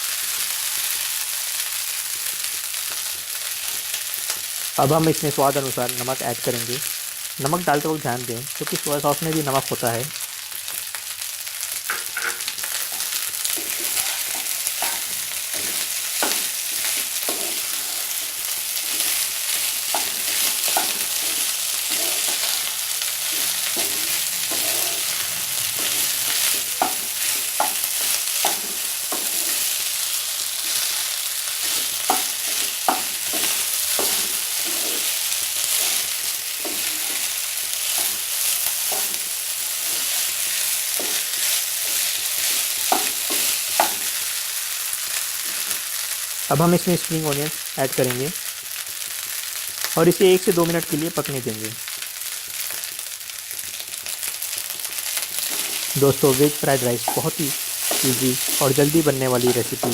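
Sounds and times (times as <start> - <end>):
rice sizzling in oil: 0.0 - 59.9
spatula scraping pan: 11.9 - 44.3, 55.2 - 59.9.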